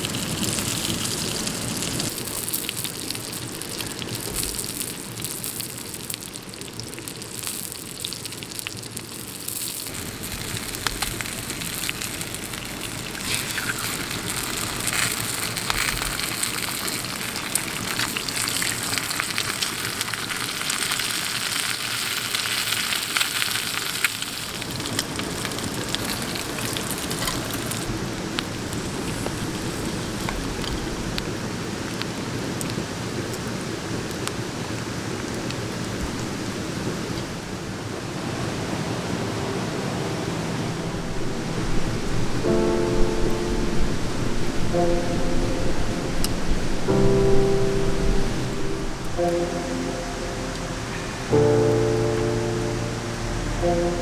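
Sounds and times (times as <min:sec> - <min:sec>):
rain falling: 0:00.0 - 0:54.0
raindrop clicks: 0:09.9 - 0:33.5.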